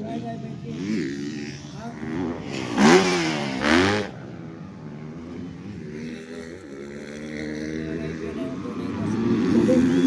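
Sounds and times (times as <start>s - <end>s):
distant motorcycle engines: 0.0s - 10.0s
motorcycle revving hard: 0.7s - 8.2s.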